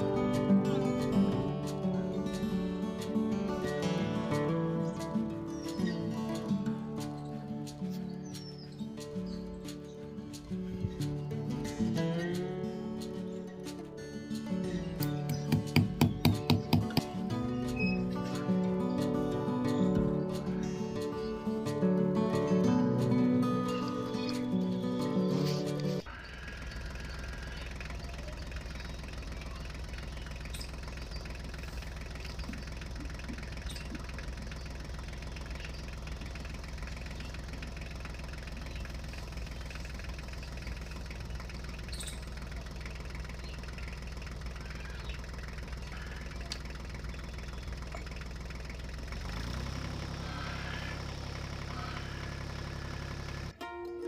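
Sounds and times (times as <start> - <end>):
small motor humming: 23.6 - 53.6.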